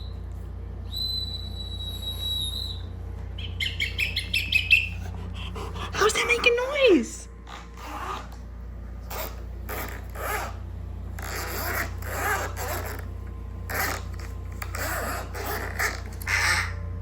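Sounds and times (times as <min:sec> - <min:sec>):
short raspy zipper-like strokes: 0:09.1 - 0:10.6, 0:11.2 - 0:13.0.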